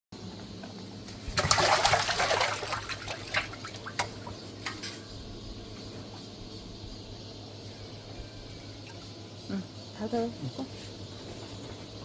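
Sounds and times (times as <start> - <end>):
water pouring and splashing: 1.0 - 5.0
water drips: 1.3 - 5.0.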